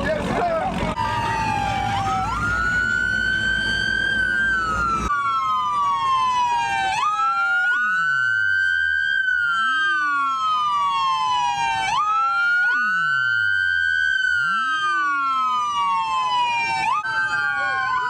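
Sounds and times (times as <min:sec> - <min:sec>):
police siren wailing: 0:00.9 - 0:18.0
second siren: 0:01.0 - 0:18.0.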